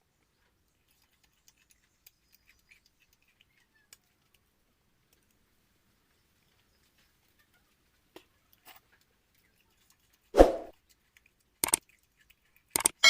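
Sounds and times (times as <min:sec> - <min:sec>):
quiet chewing and eating: 0:00.0 - 0:13.0
faint clicks: 0:10.8 - 0:13.0.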